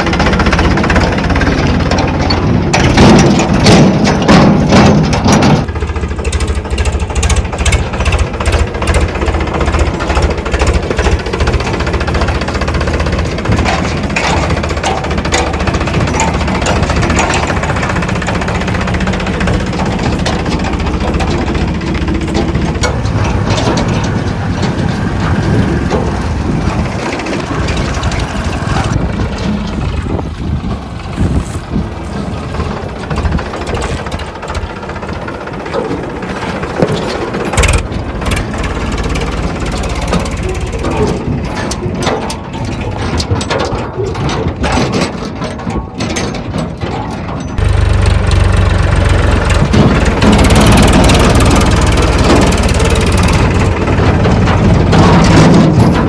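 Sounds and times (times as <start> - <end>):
farm machinery metallic clattering: 0.0 - 56.0
tractor diesel engine running: 0.0 - 56.0.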